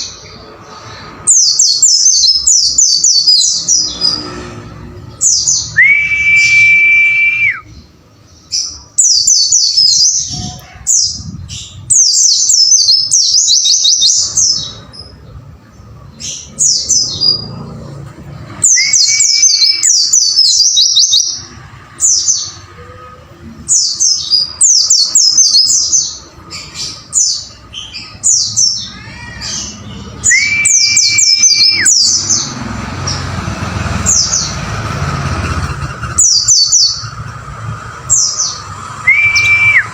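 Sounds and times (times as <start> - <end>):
fast high bird twittering: 18.6 - 22.6, 23.7 - 33.3, 33.9 - 39.9.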